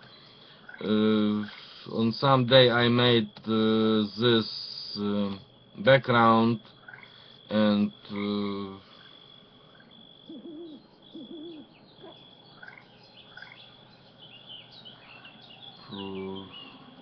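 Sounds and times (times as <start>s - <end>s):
low hoot-like bird calls: 0.0s - 2.0s, 6.7s - 17.0s
small high bird chirps: 8.9s - 17.0s.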